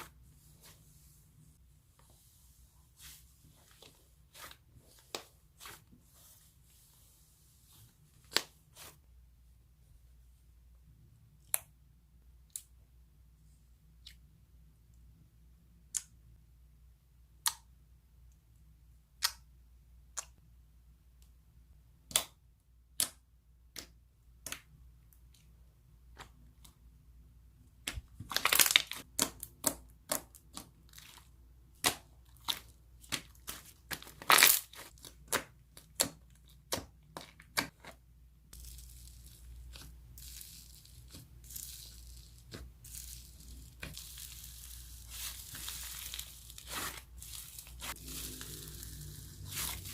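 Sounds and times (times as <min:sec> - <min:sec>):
slime popping and crinkling: 0:27.9 - 0:37.8.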